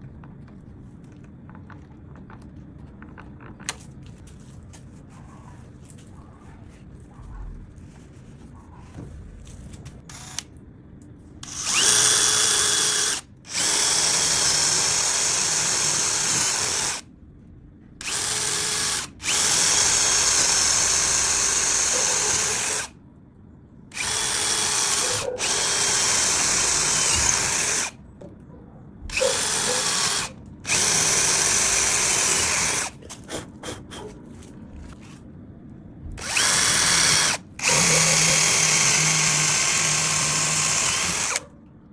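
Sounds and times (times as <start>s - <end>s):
electric drill whining: 10.1s - 10.4s, 11.4s - 17.0s, 18.0s - 22.9s, 23.9s - 28.0s, 29.1s - 33.0s, 36.2s - 41.4s.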